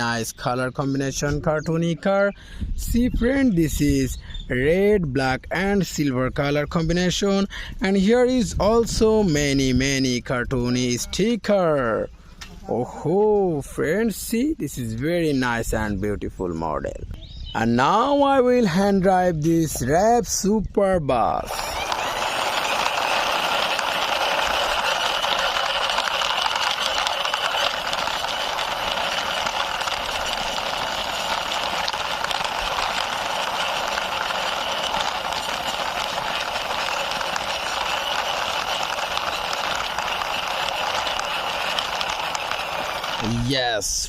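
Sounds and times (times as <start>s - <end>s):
plastic toy wheels rolling: 21.4s - 43.9s.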